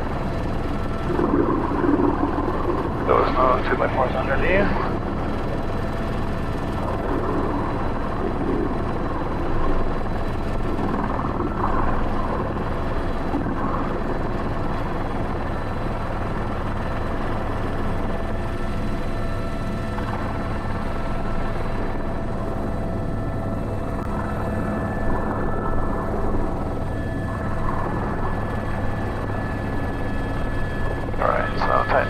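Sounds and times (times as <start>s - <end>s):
helicopter rotor thrum: 0.0s - 32.0s
turbine whine: 0.0s - 32.0s.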